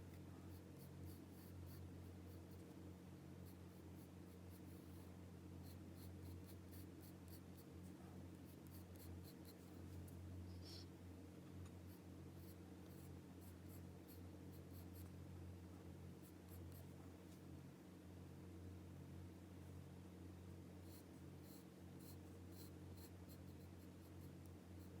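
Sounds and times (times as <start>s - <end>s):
steady low hum: 0.0s - 25.0s
pencil scratching on paper: 0.1s - 2.7s, 3.4s - 10.0s, 11.9s - 15.1s, 16.2s - 16.9s, 20.8s - 25.0s.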